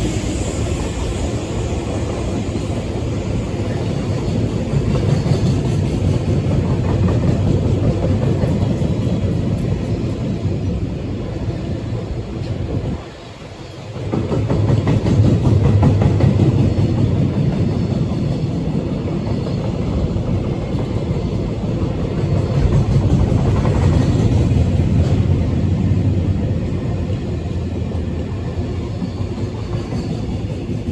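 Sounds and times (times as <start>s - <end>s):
freight train rumbling past: 0.0s - 30.9s.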